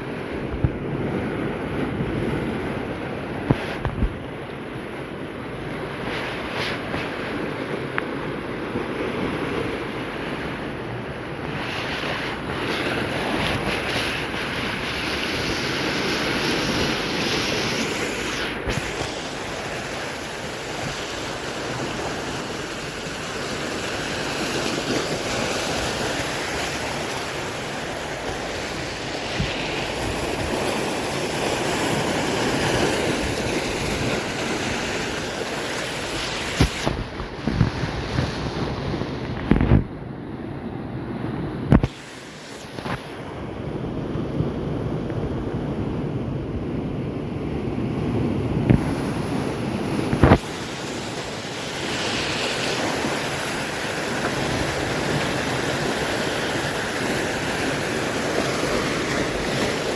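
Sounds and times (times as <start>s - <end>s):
surf crashing on shore: 0.0s - 59.9s
wind buffeting microphone: 0.0s - 59.9s.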